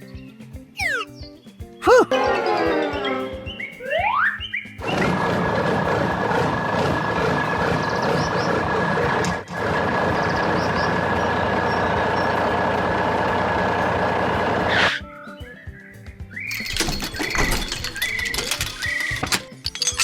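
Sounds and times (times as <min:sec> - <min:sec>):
steady high tone: 0:00.8 - 0:01.1, 0:01.8 - 0:04.4
heavy machinery engine running: 0:04.8 - 0:14.7.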